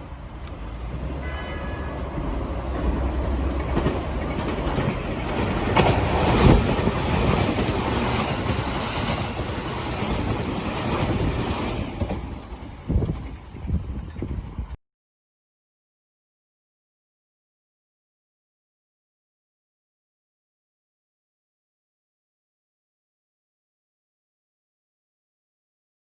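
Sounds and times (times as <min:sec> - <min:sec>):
train wheels rumbling: 0:00.0 - 0:14.8
wheels clacking over rail joints: 0:00.2 - 0:14.8.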